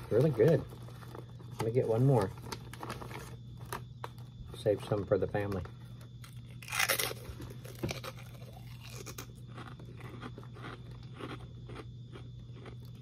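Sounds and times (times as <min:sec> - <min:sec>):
person chewing crunchy food: 0:06.1 - 0:13.0.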